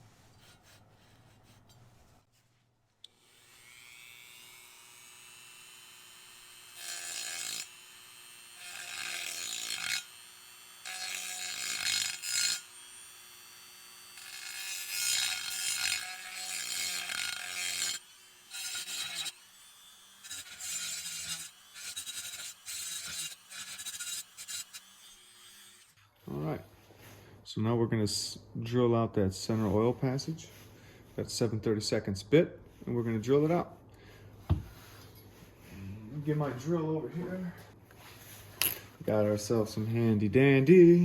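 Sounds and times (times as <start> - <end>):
rotary tool grinding metal: 3.1 - 26.0.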